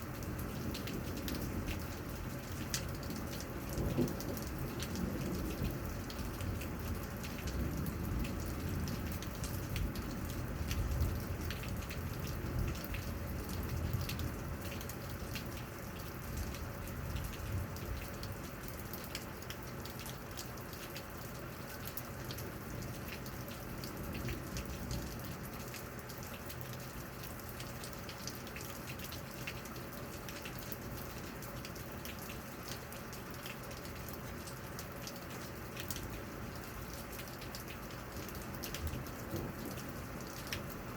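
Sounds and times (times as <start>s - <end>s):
rain falling steadily: 0.0s - 40.9s
raindrops ticking close by: 0.0s - 40.9s
low rumble of thunder: 0.3s - 14.8s, 16.3s - 18.4s, 23.8s - 25.6s, 38.7s - 40.8s.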